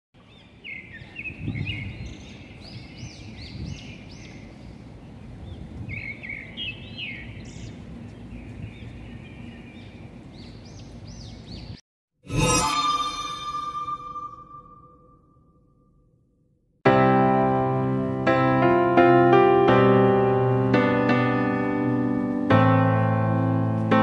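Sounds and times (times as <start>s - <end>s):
small birds chirping: 0.2s - 11.8s.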